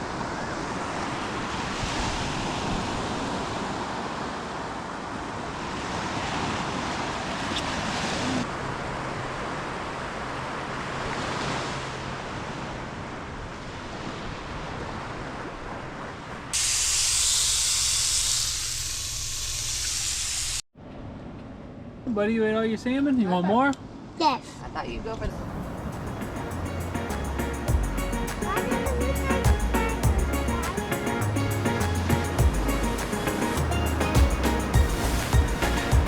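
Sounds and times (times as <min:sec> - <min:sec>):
surf and wind hiss: 0:00.0 - 0:20.6, 0:22.1 - 0:36.0
higher steady hiss: 0:16.6 - 0:20.6, 0:25.3 - 0:36.0.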